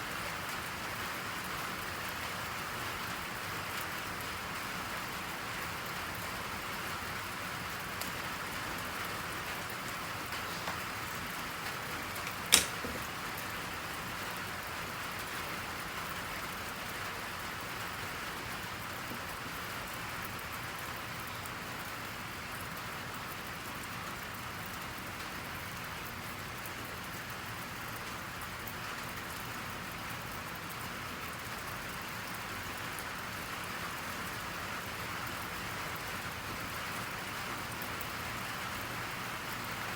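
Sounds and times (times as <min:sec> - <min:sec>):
steady rain falling: 0:00.0 - 0:39.9
sharp click: 0:12.2 - 0:13.0.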